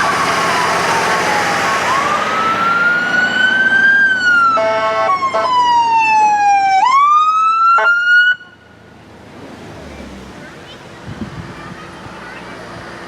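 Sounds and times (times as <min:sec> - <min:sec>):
fire engine siren wailing: 0:00.0 - 0:08.7.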